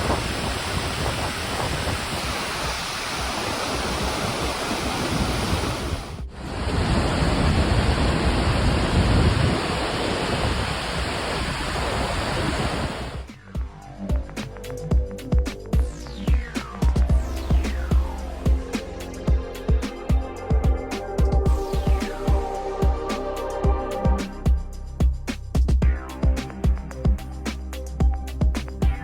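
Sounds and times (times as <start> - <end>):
waterfall rushing: 0.0 - 13.3
electronic music with steady beat: 13.2 - 29.0.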